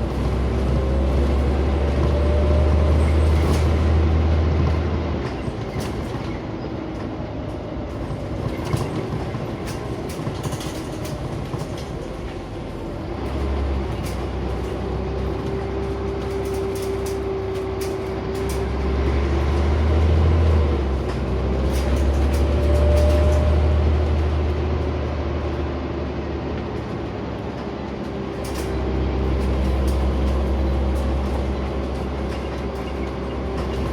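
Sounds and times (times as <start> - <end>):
bus engine drone: 0.0 - 33.9
light rattles and clicks: 8.2 - 19.6, 26.6 - 33.9.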